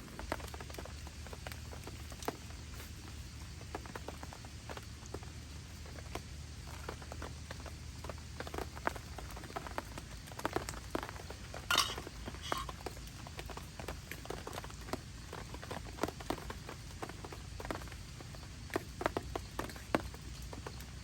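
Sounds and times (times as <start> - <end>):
camp cookware clinking: 11.4 - 12.9.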